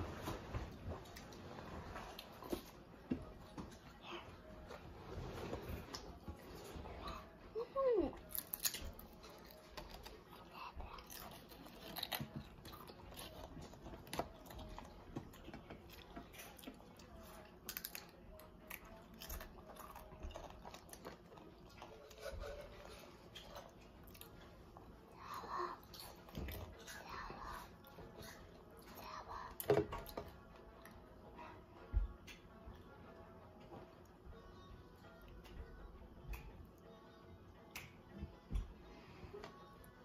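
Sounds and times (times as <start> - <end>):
children crunching potato chips: 8.2 - 24.5.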